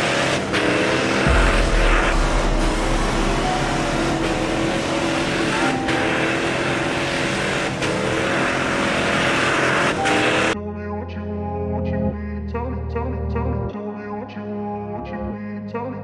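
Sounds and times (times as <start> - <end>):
engine revving in snow: 0.0 - 10.6.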